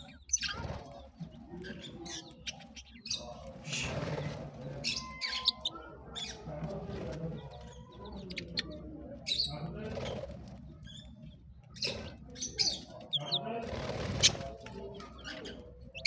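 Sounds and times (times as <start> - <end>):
parrots chirping and squawking: 0.0 - 16.0.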